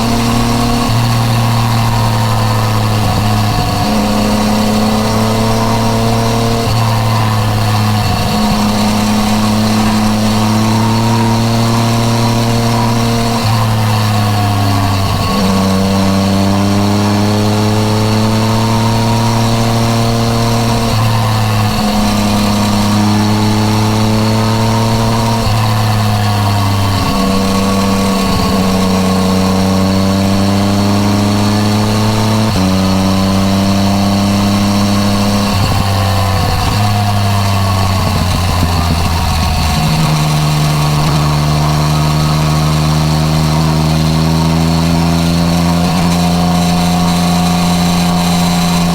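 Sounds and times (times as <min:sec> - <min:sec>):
motorcycle engine with gear changes: 0:00.0 - 0:48.9
rushing wind: 0:00.0 - 0:48.9.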